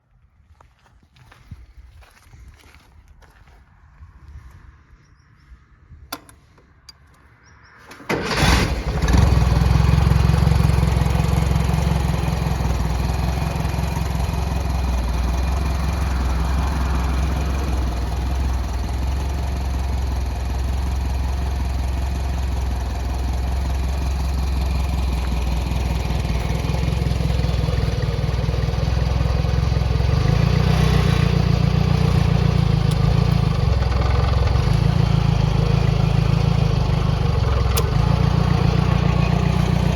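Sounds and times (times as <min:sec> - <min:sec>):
tractor engine starting and running: 0:06.0 - 0:39.9.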